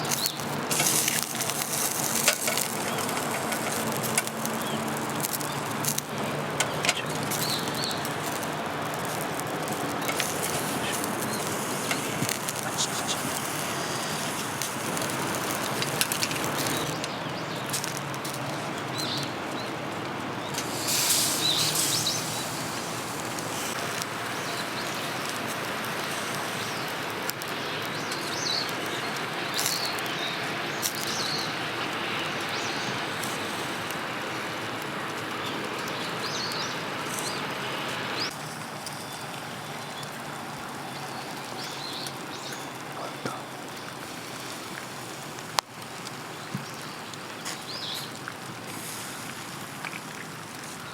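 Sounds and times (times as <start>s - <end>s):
birds chirping: 0.0s - 45.1s, 46.2s - 48.2s
steady rain: 0.0s - 50.9s
brief louder hiss: 20.6s - 23.8s.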